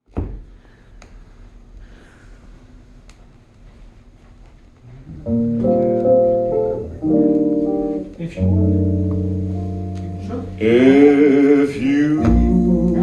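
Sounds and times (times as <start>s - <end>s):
vinyl record groove noise: 3.7s - 11.5s, 12.2s - 13.0s
instrumental song held chords: 5.1s - 13.0s.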